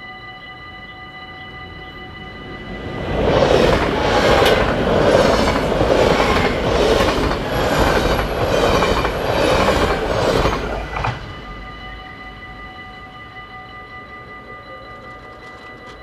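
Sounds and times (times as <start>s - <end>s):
train rushing rumble: 1.2s - 12.8s.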